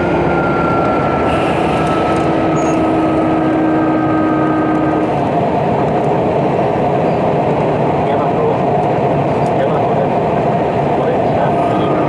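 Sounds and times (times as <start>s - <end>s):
inverter tones: 0.0s - 5.0s
train wheels rumbling on rails: 0.0s - 12.0s.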